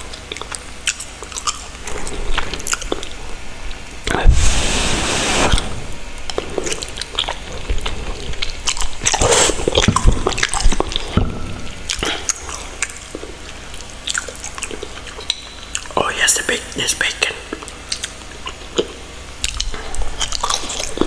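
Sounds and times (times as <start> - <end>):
wet chewing clicks: 0.1 - 3.2, 6.7 - 11.2, 11.9 - 15.9, 17.5 - 21.0
slurping noodles: 4.2 - 6.0, 9.1 - 9.8.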